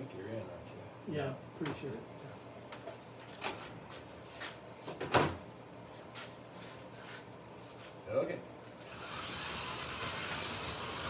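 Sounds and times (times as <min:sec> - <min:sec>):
slot cars whirring: 0:08.8 - 0:11.0.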